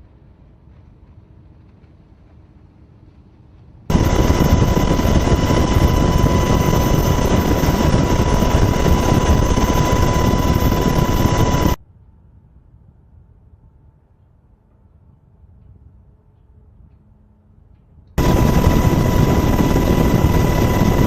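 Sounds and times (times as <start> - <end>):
helicopter engine whine: 3.9 - 11.8, 18.2 - 21.0.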